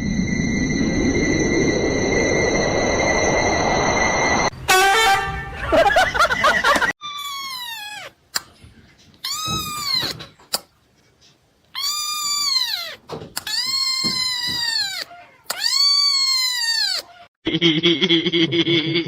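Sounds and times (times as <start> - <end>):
cat meowing: 7.1 - 8.2, 9.2 - 10.2, 11.7 - 17.3.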